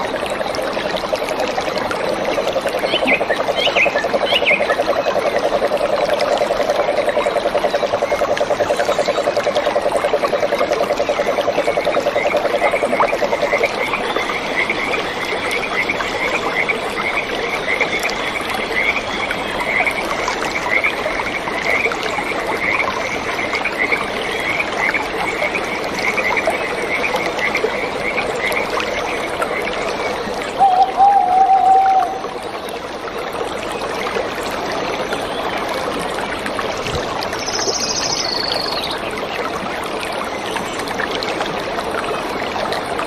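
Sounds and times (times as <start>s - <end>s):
frogs chirping: 2.1s - 32.4s, 37.3s - 39.3s.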